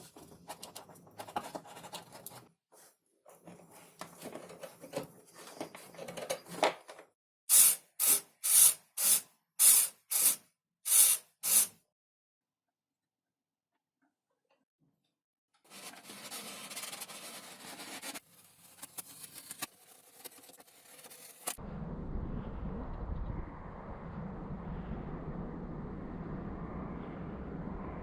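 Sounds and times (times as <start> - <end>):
short loud hissing strokes: 7.5 - 11.7.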